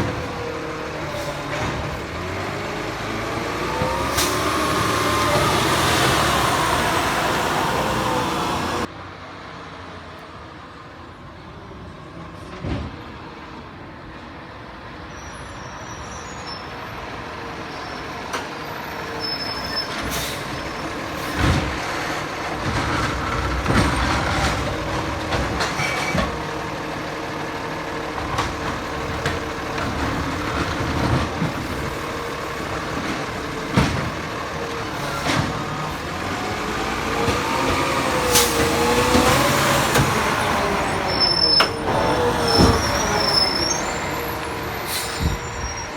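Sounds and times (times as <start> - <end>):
garbage truck running: 0.0 - 8.9, 16.6 - 45.9
clanks and knocks: 21.3 - 26.5, 28.2 - 41.0.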